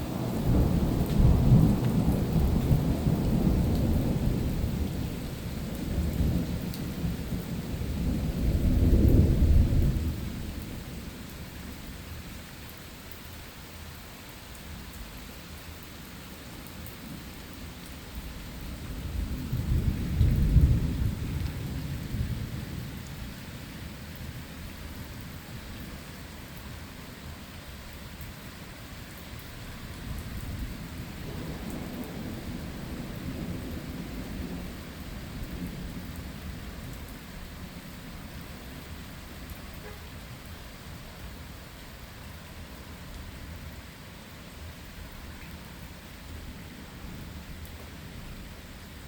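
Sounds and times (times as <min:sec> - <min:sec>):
thunder rumbling: 0:00.0 - 0:11.0, 0:18.7 - 0:23.3, 0:29.9 - 0:36.9
steady rain: 0:00.0 - 0:49.0.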